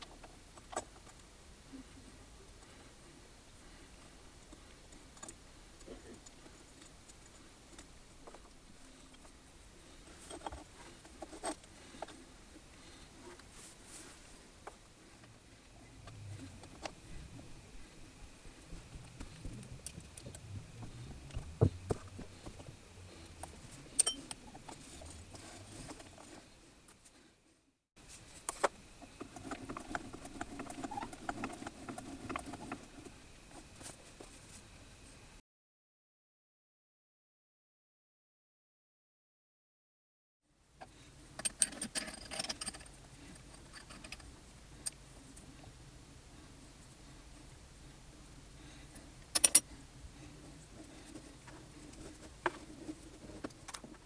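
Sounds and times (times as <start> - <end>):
low hum: 1.1 - 27.4.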